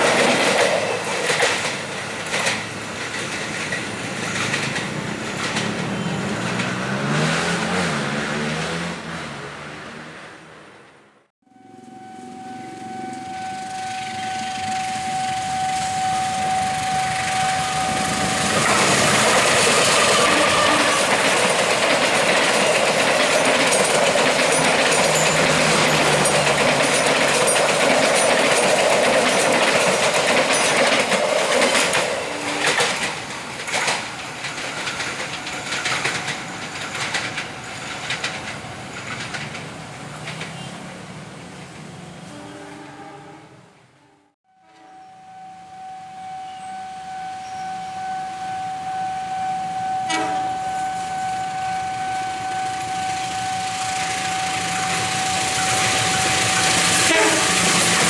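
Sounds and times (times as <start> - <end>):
wheels clicking over rail joints: 0.0 - 8.1, 14.0 - 42.0, 47.4 - 58.0
train passing: 0.0 - 58.0
held tone: 11.4 - 31.0, 44.7 - 57.9.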